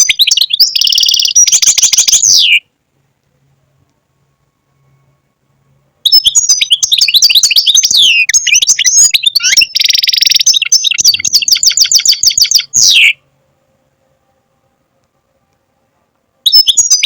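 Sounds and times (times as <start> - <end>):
goldfinch twittering song: 0.0 - 2.6, 6.0 - 13.2, 16.5 - 17.0.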